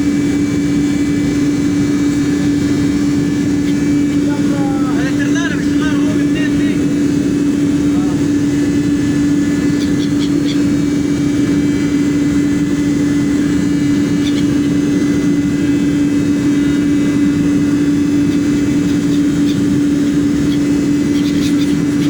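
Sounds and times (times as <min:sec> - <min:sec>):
boat engine humming: 0:00.0 - 0:22.0
faint gull calls: 0:00.7 - 0:22.0.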